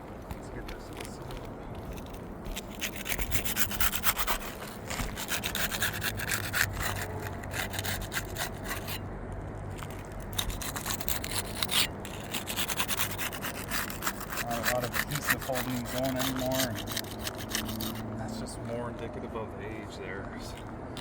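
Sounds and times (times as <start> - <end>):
putty knife scraping shingles: 1.9 - 9.1, 9.8 - 18.0.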